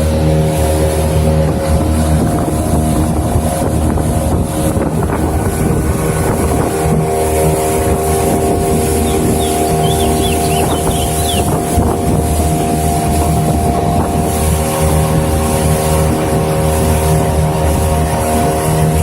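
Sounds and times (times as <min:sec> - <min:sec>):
engine drone: 0:00.0 - 0:19.0
short high chirps: 0:09.1 - 0:11.5.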